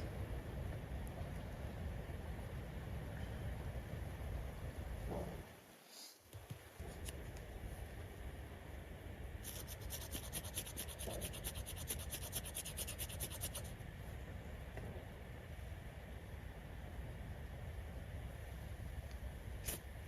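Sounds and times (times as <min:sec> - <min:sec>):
wind rumble on microphone: 0:00.0 - 0:05.6.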